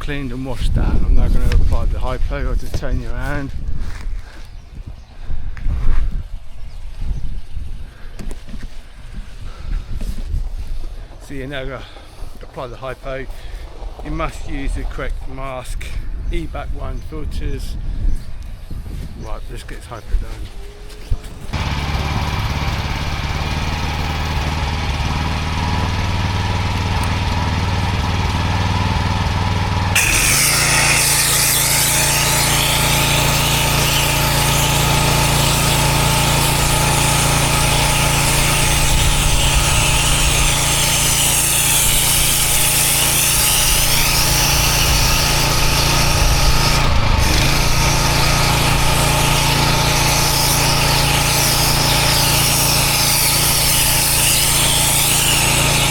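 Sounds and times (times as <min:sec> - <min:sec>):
engine running steadily: 0:21.4 - 0:41.6, 0:43.0 - 0:54.7.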